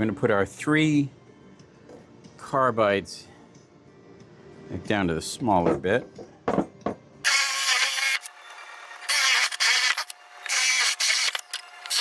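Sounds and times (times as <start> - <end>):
power drill boring into wood: 7.3 - 12.0.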